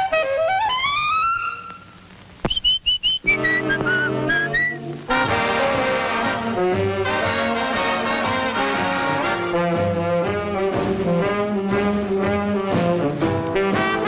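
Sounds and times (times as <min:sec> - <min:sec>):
high piping notes: 0:00.8 - 0:06.7
brassy cartoon music with trombones: 0:03.2 - 0:14.0.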